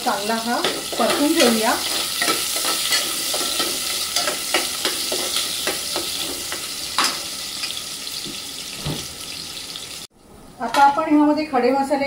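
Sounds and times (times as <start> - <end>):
onion sizzling in hot oil: 0.0 - 10.1
spoon scraping pan: 0.6 - 7.8.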